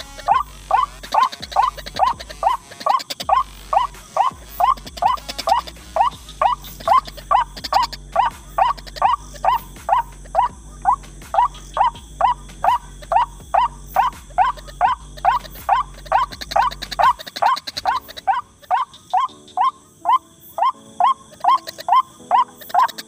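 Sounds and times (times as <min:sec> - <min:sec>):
low hum: 0:00.0 - 0:02.6, 0:03.2 - 0:17.2
waterhen calling: 0:00.0 - 0:23.0.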